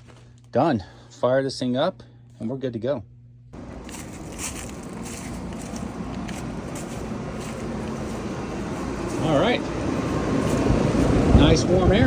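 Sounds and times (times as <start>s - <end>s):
low hum: 3.1s - 12.0s
condenser fan rushing: 3.6s - 12.0s.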